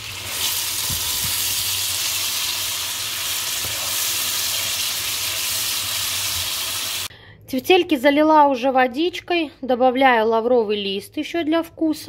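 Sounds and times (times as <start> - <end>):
vegetables sizzling in oil: 0.0 - 7.1.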